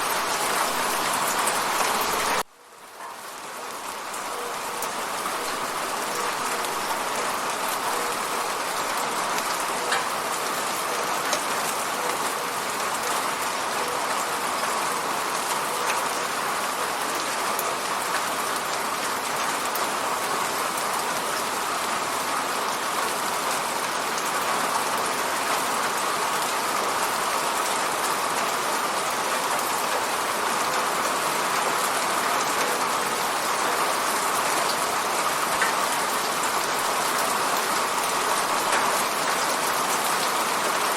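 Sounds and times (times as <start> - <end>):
rain pattering on a window: 0.0 - 40.9.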